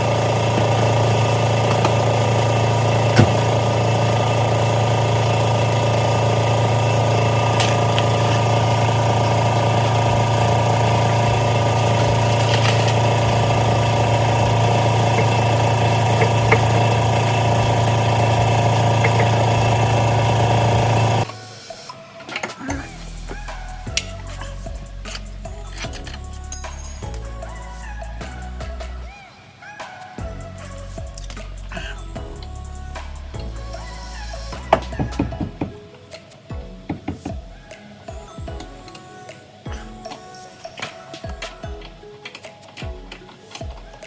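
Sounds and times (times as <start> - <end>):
car engine idling: 0.0 - 21.3.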